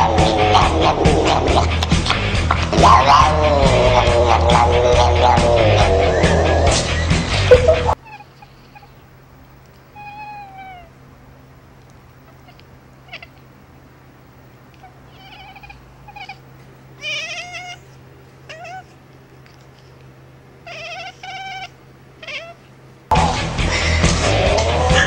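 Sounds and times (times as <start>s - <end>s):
cat meowing: 7.9s - 9.0s, 9.9s - 10.9s, 12.2s - 13.5s, 14.7s - 19.0s, 20.6s - 22.7s.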